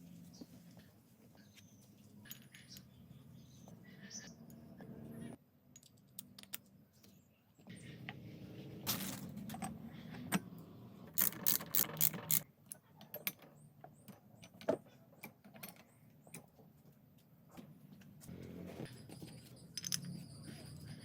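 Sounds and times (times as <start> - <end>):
tools clicking and knocking: 5.7 - 6.8, 11.2 - 16.6.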